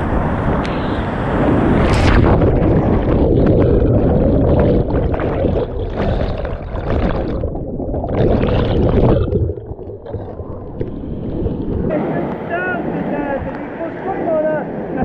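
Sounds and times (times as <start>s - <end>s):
whitewater rushing: 10.1s - 15.0s.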